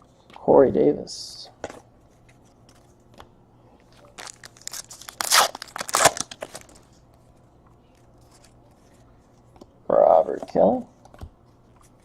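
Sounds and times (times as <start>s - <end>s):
foil wrapper crinkling and tearing: 4.0s - 6.9s.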